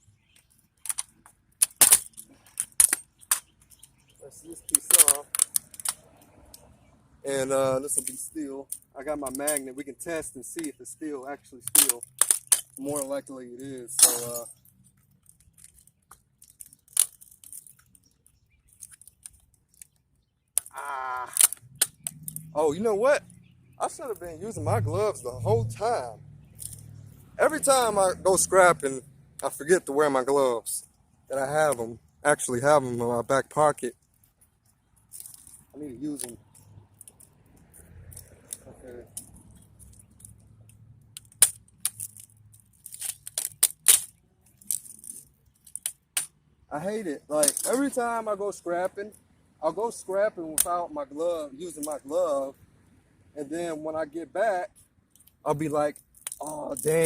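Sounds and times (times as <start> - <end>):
metal scrap parts clicking and scraping: 0.4 - 6.0, 7.9 - 20.0, 20.6 - 22.6, 26.5 - 29.9, 35.1 - 40.4, 41.1 - 46.3, 47.3 - 48.2, 54.7 - 57.0.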